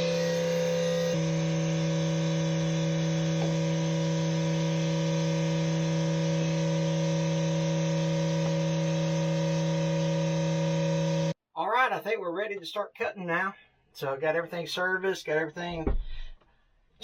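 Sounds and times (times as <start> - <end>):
tractor diesel engine droning: 0.0 - 11.4.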